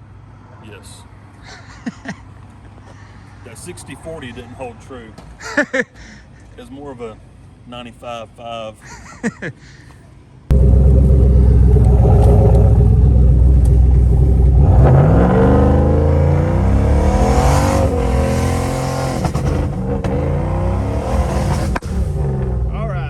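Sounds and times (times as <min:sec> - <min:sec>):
car engine running hard: 0:10.5 - 0:23.0.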